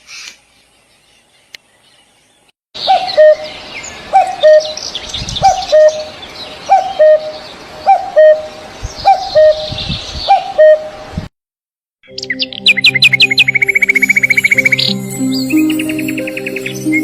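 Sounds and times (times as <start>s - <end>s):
high-pitched bird chirping: 2.8s - 10.9s, 12.0s - 17.0s.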